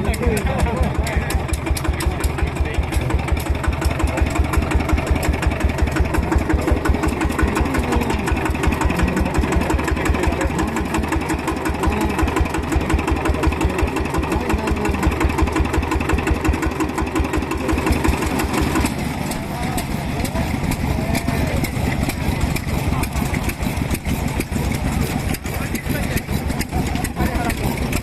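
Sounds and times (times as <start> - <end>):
single-cylinder engine running: 0.0 - 28.0.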